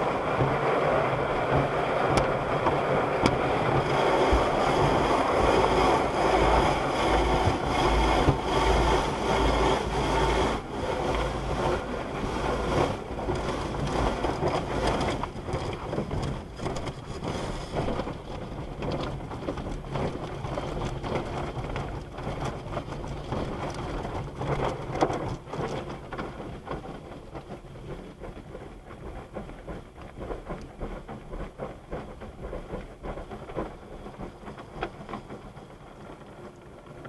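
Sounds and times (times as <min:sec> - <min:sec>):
water spray drumming on car: 0:00.0 - 0:37.0.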